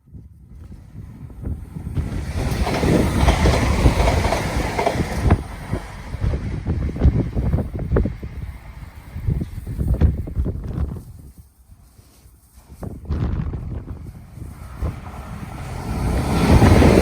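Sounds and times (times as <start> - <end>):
train wheels clattering over rail joints: 1.4 - 9.4.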